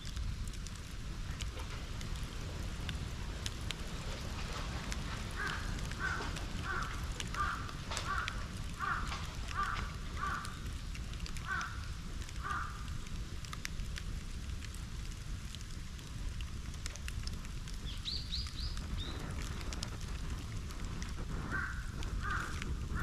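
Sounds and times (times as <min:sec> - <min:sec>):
bonfire crackling and popping: 0:00.0 - 0:23.0
crow cawing: 0:05.4 - 0:10.6, 0:11.4 - 0:11.8, 0:12.4 - 0:12.9, 0:21.5 - 0:23.0.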